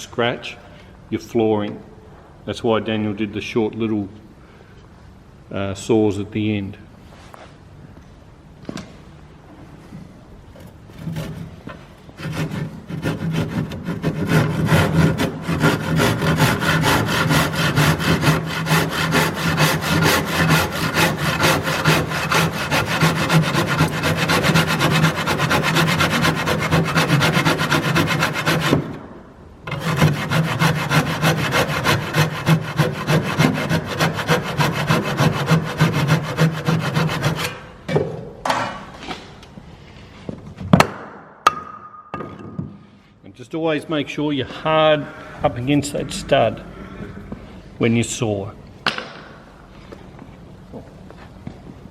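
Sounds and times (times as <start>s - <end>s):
handsaw cutting timber: 12.2s - 29.0s, 29.7s - 37.6s.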